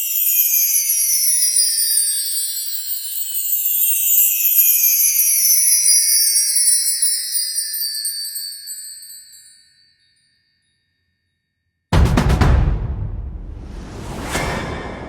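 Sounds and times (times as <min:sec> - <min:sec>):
loud hit with deep boom: 0:12.0 - 0:15.0.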